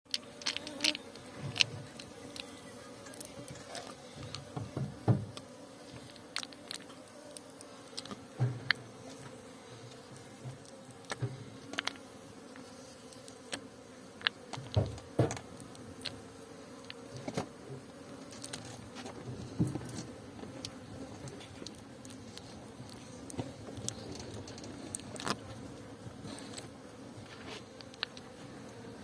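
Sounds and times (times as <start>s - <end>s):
bees buzzing: 0.1s - 29.0s
sharp clicks and knocks: 14.2s - 16.2s.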